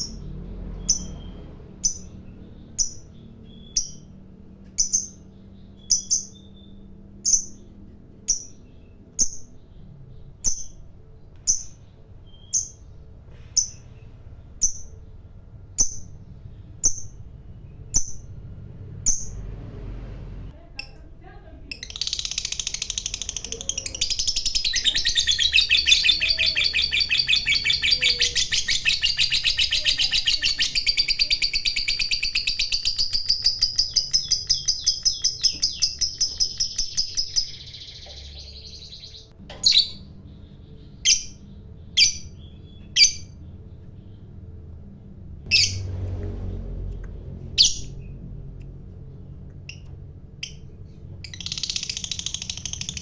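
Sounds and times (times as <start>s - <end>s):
bird sharp chirps: 0.0s - 18.4s, 21.8s - 44.3s
bird chattering trill: 21.8s - 43.5s, 50.4s - 53.0s.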